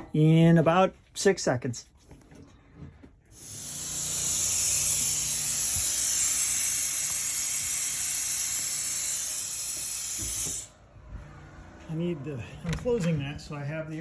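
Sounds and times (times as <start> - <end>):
compressed air hissing from pipe: 3.3 - 10.7.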